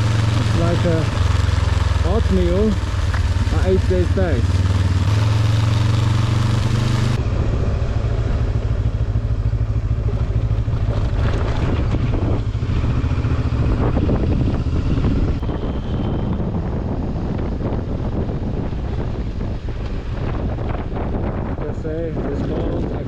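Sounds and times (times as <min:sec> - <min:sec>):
motorcycle engine running: 0:00.0 - 0:23.0
wind noise on microphone: 0:10.3 - 0:23.0.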